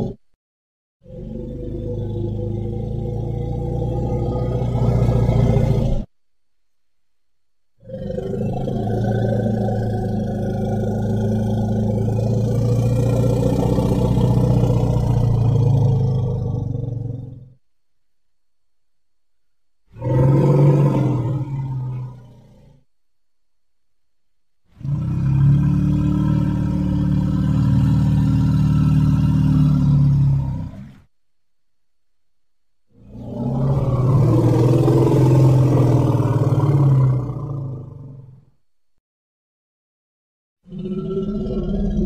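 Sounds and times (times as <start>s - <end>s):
long low growl: 0.0s - 0.2s, 1.0s - 6.1s, 7.8s - 17.6s, 19.9s - 22.9s, 24.7s - 31.1s, 32.9s - 38.5s, 40.7s - 42.0s
long low rough animal call: 0.0s - 0.2s, 1.0s - 6.1s, 7.8s - 17.6s, 19.9s - 22.9s, 24.7s - 31.1s, 32.9s - 38.5s, 40.6s - 42.0s.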